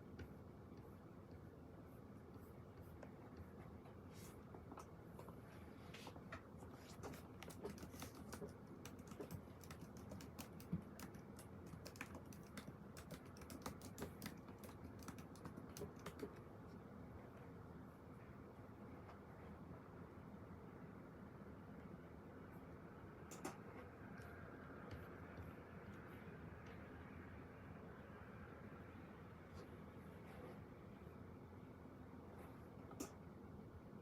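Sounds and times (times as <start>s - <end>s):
low room hum: 0.0s - 34.0s
computer keyboard typing: 6.8s - 16.5s.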